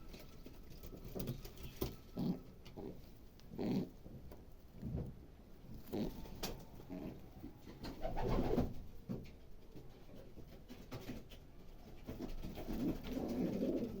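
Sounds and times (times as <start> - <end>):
pigeons cooing: 0.0 - 4.3, 5.7 - 8.8, 12.2 - 14.0.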